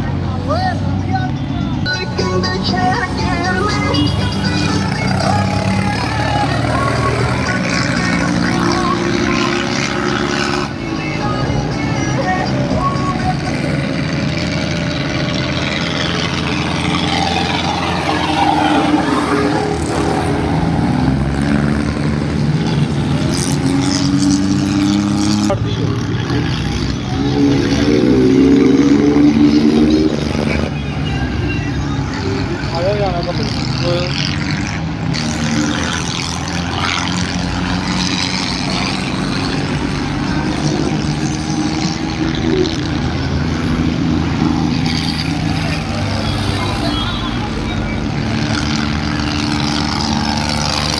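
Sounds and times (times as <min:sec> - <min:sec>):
tractor diesel engine revving: 0:00.0 - 0:50.9.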